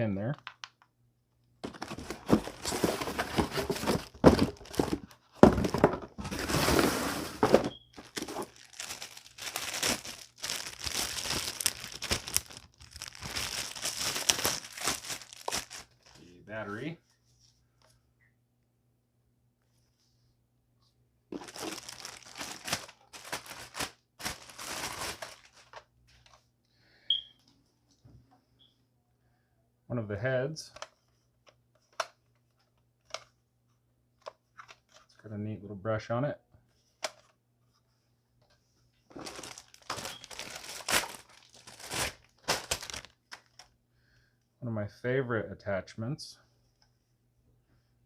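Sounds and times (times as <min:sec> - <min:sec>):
plastic packaging crinkling: 0:01.6 - 0:16.2, 0:21.3 - 0:25.9, 0:39.1 - 0:43.7.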